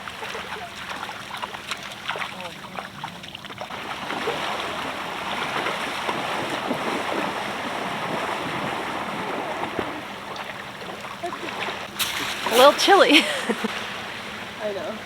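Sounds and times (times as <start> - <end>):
people wading and splashing: 0.0 - 15.0
ocean surf washing: 3.7 - 15.0.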